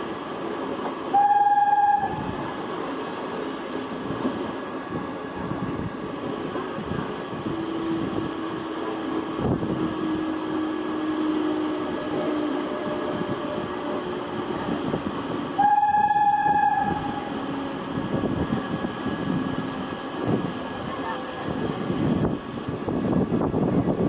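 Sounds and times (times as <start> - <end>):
train rumbling past: 0.0 - 24.0
locomotive horn: 1.1 - 2.3, 15.6 - 17.4.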